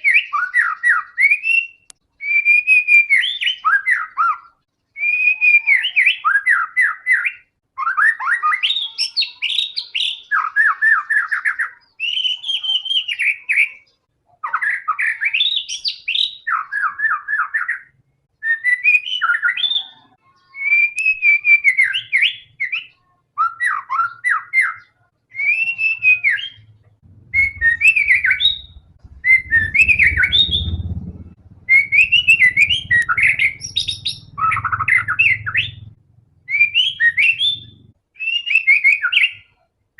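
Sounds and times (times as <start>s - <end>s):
bird singing whistled notes and trills: 0.0s - 39.6s
low rumble: 26.5s - 38.0s.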